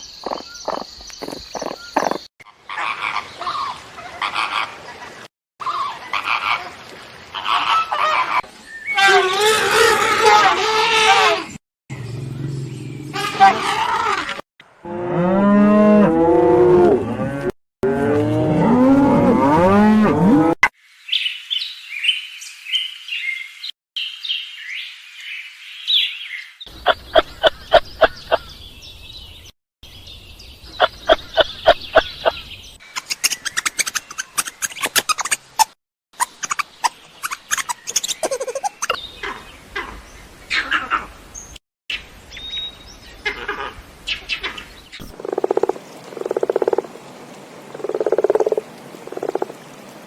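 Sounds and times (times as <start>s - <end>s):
high-pitched chirping calls: 0.0s - 2.3s, 36.2s - 39.0s.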